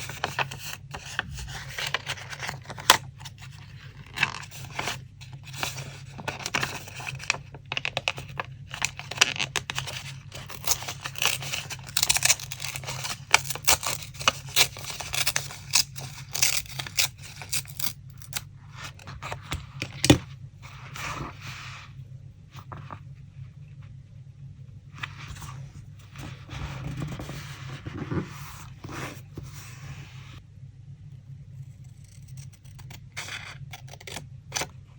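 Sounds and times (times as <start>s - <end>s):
paper rustling: 0.0s - 17.9s, 25.0s - 30.4s
paper tearing and crinkling: 8.2s - 18.4s.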